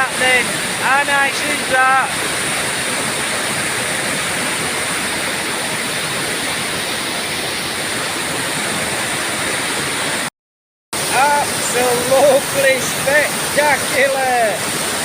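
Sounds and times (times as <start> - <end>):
river water rushing: 0.0 - 10.3, 11.0 - 15.0.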